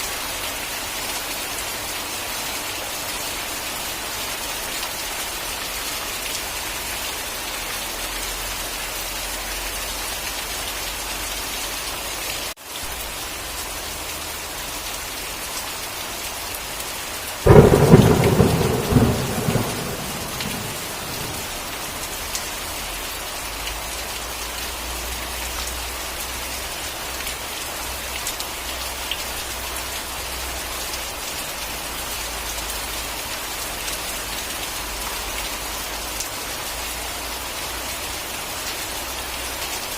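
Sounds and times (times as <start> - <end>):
steady rain: 0.0 - 39.9
thunderclap: 17.4 - 22.0.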